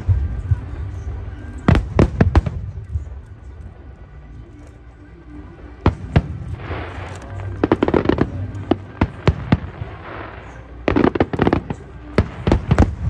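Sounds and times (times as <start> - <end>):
fireworks crackling fizz: 5.8 - 13.0.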